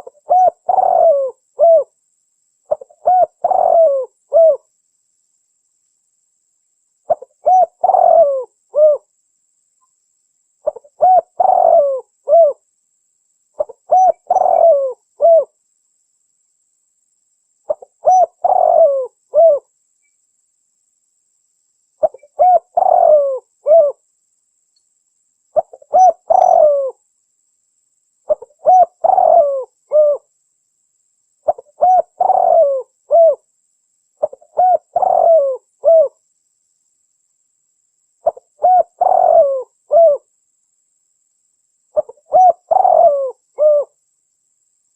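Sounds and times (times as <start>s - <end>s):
dove cooing: 0.0s - 1.9s, 2.7s - 4.7s, 7.1s - 9.1s, 10.6s - 12.6s, 13.6s - 15.5s, 17.7s - 19.7s, 22.0s - 24.0s, 25.6s - 27.0s, 28.3s - 30.3s, 31.4s - 33.4s, 34.2s - 36.2s, 38.2s - 40.3s, 42.0s - 44.0s.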